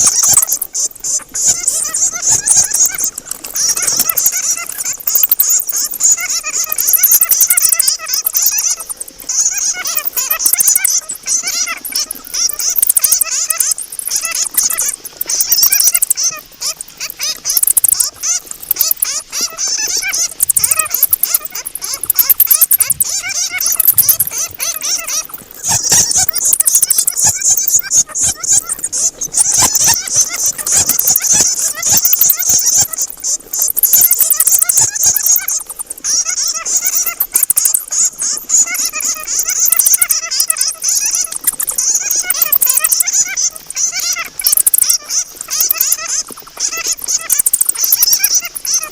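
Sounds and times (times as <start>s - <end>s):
bats squeaking and clicking: 0.0s - 48.9s.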